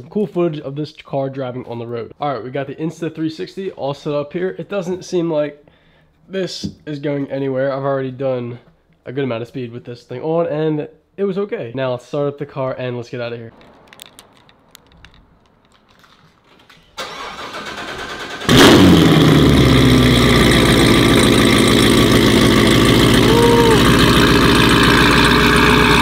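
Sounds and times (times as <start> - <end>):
car engine starting and idling: 13.5 - 26.0
starter motor whirring: 17.0 - 26.0.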